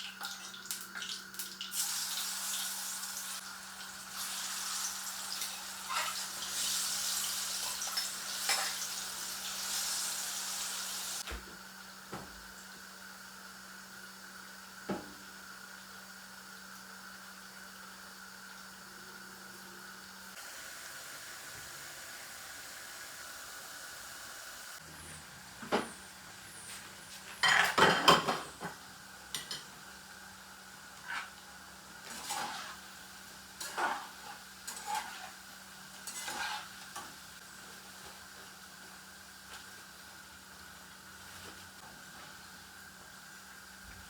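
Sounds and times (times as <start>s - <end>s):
dishes clinking: 27.4s - 28.8s
loud clatter of dishes: 27.4s - 28.8s.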